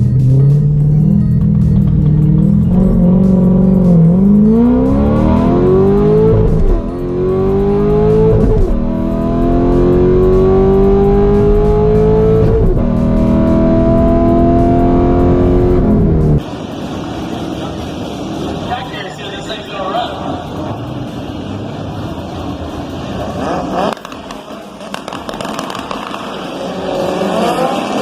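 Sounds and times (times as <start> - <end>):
gear upshifts: 0.0 - 16.5
car engine at full throttle: 0.0 - 28.0.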